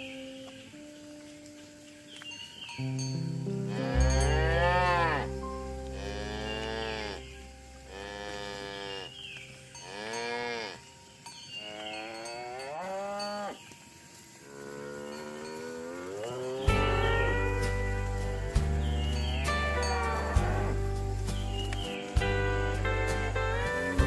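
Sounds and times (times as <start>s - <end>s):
cattle mooing: 3.6s - 9.2s, 9.8s - 10.9s, 11.6s - 13.6s, 14.5s - 21.0s.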